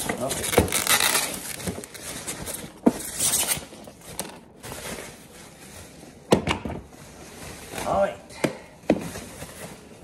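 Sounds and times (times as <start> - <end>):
packaging rustle: 0.0 - 6.2.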